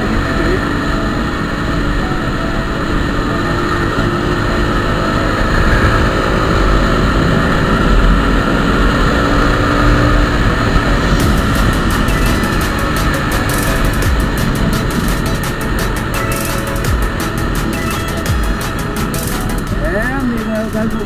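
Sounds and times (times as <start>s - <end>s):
vehicle rumbling: 0.0s - 21.0s
wind rushing: 0.0s - 21.0s
high ticks: 5.5s - 21.0s.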